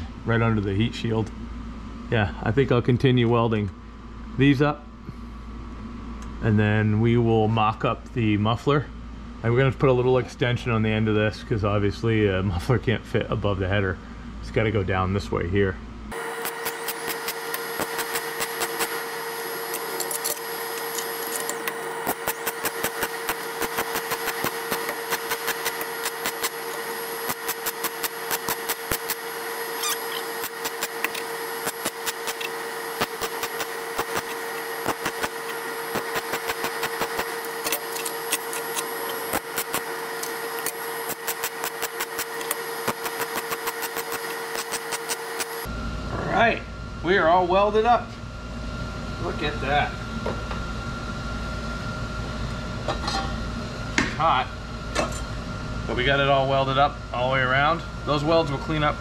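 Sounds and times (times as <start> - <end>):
electric arc welding buzz: 16.1 - 45.7.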